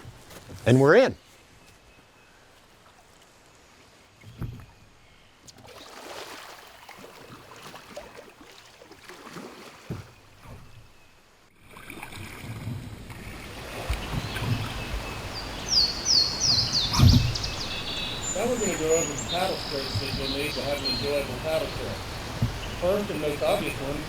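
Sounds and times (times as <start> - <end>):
paddle splashing: 2.4 - 24.0
paddle knocking kayak: 7.0 - 11.0, 12.4 - 24.0
wind rumble on microphone: 12.4 - 24.0
birds chirping: 13.3 - 24.0.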